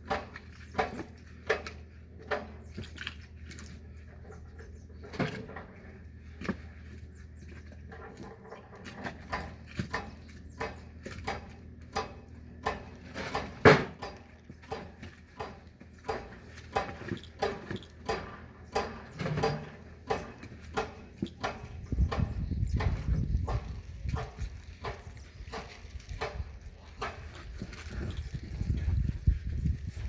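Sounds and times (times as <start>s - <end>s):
firewood being chopped: 9.3s - 26.4s.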